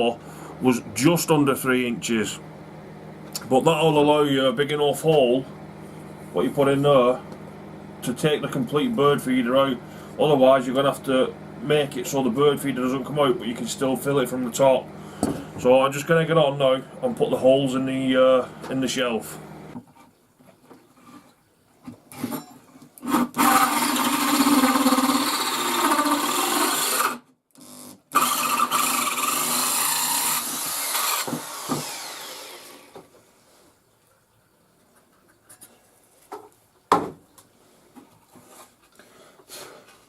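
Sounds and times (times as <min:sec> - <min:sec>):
hole saw cutting wood: 0:23.0 - 0:33.0.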